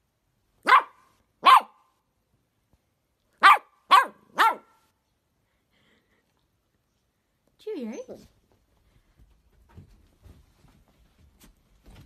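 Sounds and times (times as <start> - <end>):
puppy barking: 0.6 - 1.9, 3.4 - 4.9.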